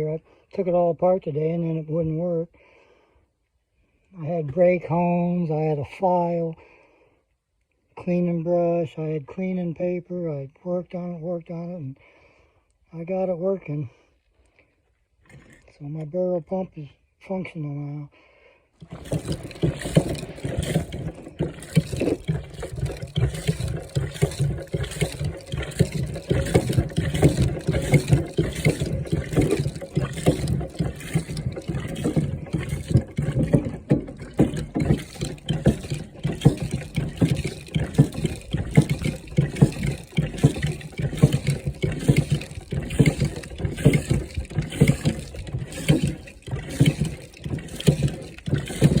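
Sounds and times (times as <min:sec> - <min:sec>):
hand pump pumping: 0:15.2 - 0:15.7, 0:18.8 - 0:49.0
water gushing and splashing: 0:18.8 - 0:49.0.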